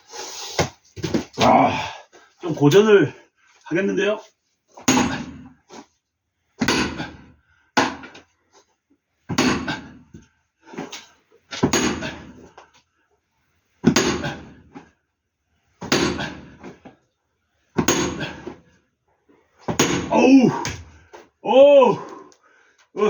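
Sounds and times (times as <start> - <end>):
splitting tool striking log: 19.7 - 20.8.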